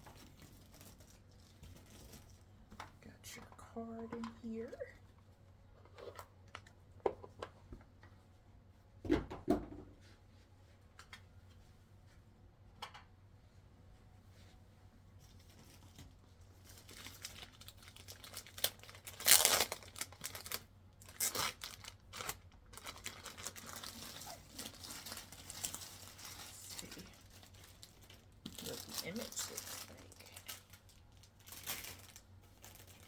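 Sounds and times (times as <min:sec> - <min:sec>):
packaging crinkling and rustling: 0:00.0 - 0:04.8, 0:15.2 - 0:33.0.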